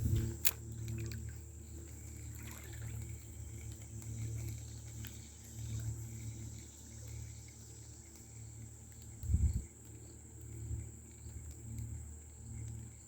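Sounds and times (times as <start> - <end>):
low rumble: 0.0 - 0.4
insect drone: 0.0 - 13.0
faint ticks: 0.1 - 13.0.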